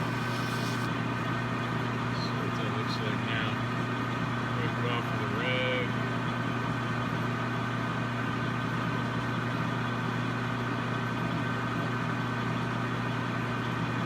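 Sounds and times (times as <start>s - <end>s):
metal lathe motor hum: 0.0s - 0.9s.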